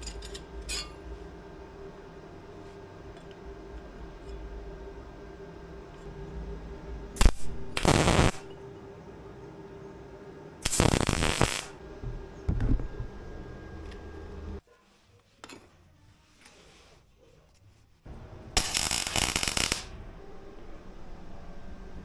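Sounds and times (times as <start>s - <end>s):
faint steady hum: 0.0s - 14.6s
hand power tool bursts: 18.6s - 19.9s.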